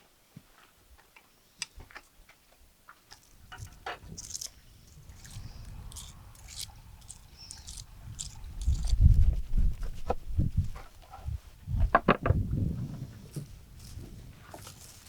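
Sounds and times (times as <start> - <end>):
chewing crisp fried food: 3.1 - 9.6
low thumps and rumbling: 5.1 - 14.2.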